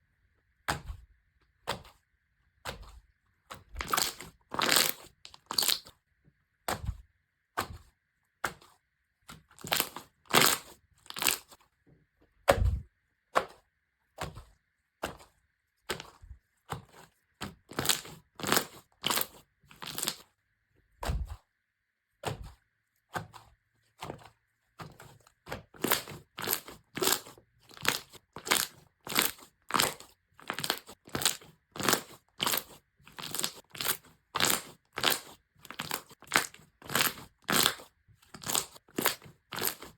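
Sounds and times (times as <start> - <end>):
slime squishing crunchily: 2.6 - 5.9, 8.5 - 11.6, 12.5 - 20.3, 25.0 - 39.9.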